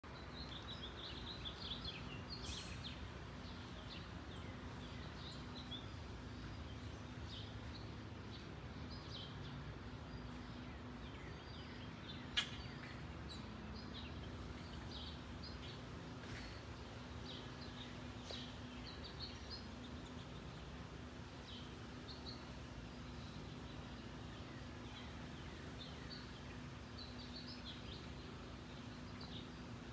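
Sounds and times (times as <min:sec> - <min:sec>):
small birds chirping: 0:00.0 - 0:29.9.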